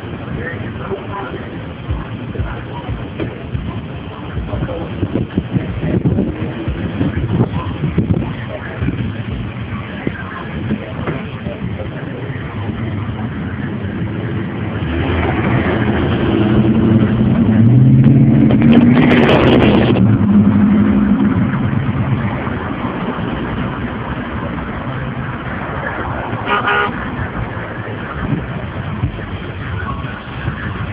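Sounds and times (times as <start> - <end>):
vehicle passing by: 12.3 - 30.9
short horn toot: 26.4 - 27.0.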